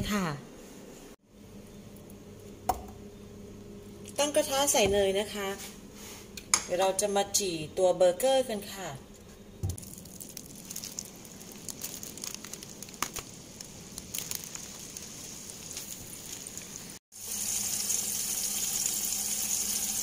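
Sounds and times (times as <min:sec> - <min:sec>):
patties sizzling in butter: 0:09.8 - 0:20.0.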